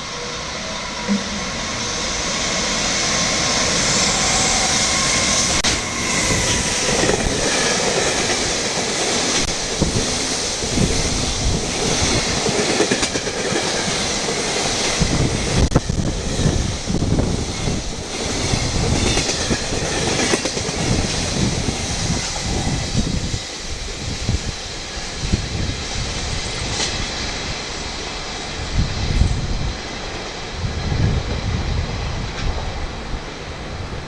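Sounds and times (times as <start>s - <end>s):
freight train rumbling past: 0.0s - 34.0s
wheels clacking over rail joints: 1.0s - 16.1s.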